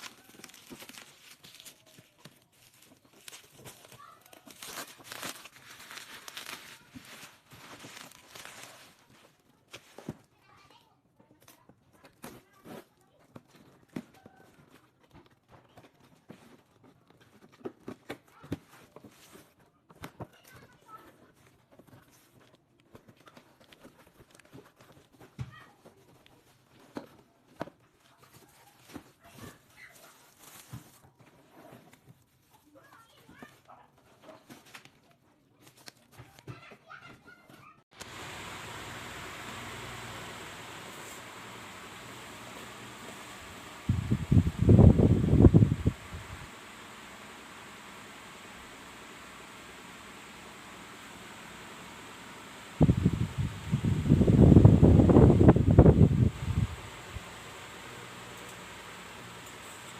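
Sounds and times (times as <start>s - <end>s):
packaging crinkling and tearing: 0.0s - 10.3s, 28.3s - 31.0s.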